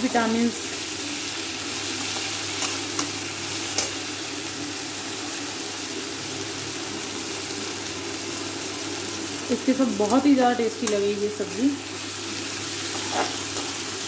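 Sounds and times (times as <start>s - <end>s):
vegetables sizzling in hot oil: 0.0s - 14.0s
metal spoon clicking on pan: 3.7s - 4.0s, 10.0s - 11.1s.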